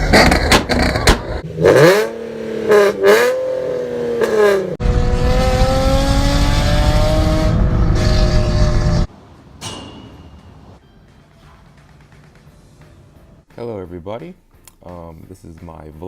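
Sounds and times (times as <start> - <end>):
car accelerating hard: 0.0 - 9.1
car engine revving: 0.0 - 9.1.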